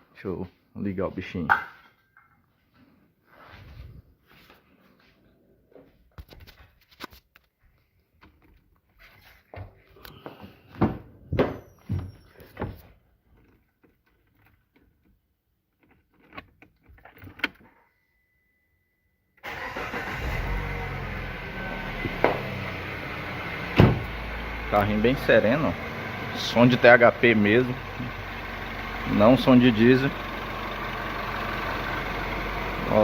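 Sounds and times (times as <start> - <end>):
car engine starting and running: 19.4 - 33.0.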